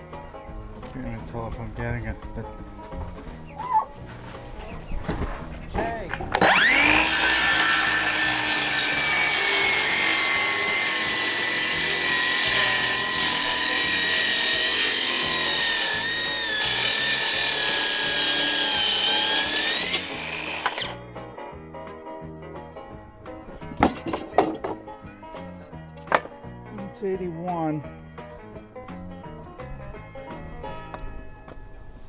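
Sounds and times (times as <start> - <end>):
power saw cutting wood: 6.1 - 21.0.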